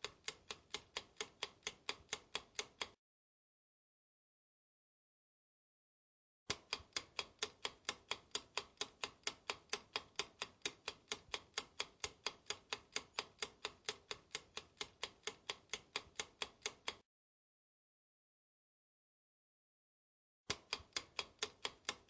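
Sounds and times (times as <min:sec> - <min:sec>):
fast clock ticking: 0:00.0 - 0:03.0, 0:06.5 - 0:17.0, 0:20.5 - 0:22.0.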